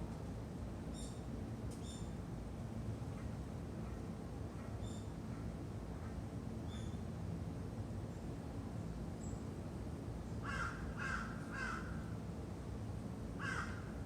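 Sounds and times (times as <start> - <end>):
crow cawing: 10.4 - 12.0, 13.4 - 13.9.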